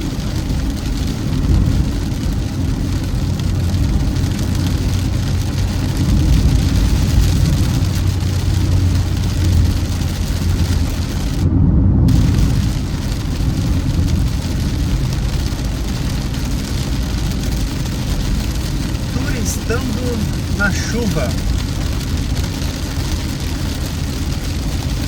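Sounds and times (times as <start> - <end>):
engine and tyre rumble: 0.0 - 25.0
road hiss: 17.9 - 22.8.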